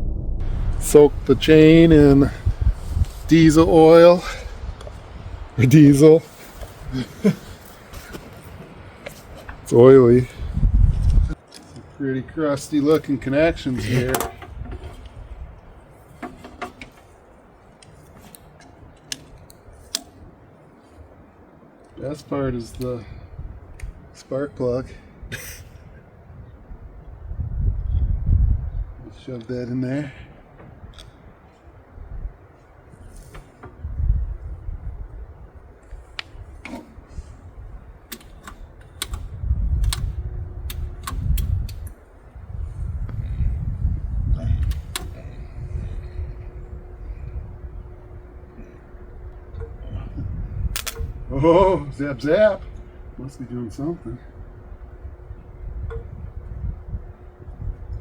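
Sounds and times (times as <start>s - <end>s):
low rumble: 0.0s - 5.6s, 42.4s - 58.0s
metallic clicks and taps: 38.1s - 40.1s.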